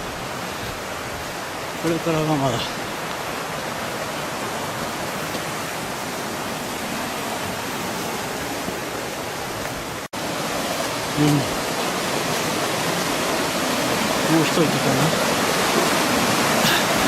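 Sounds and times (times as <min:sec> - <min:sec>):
stream water cascading: 0:00.0 - 0:17.0.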